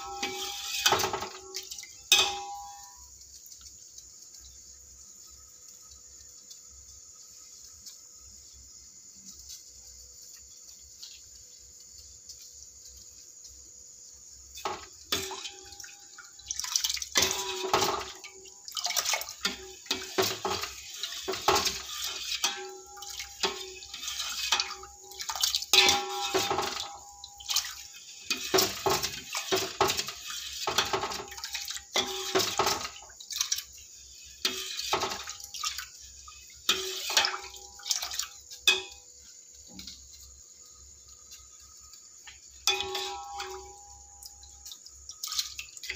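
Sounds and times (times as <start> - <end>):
pot clattering: 0.0 - 3.2, 14.5 - 33.8, 34.4 - 40.2, 42.6 - 45.9
water splashing and sloshing: 0.0 - 3.8, 14.5 - 45.9.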